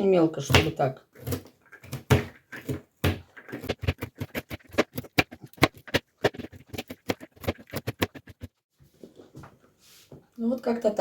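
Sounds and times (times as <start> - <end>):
knife chopping nuts: 0.4 - 8.6.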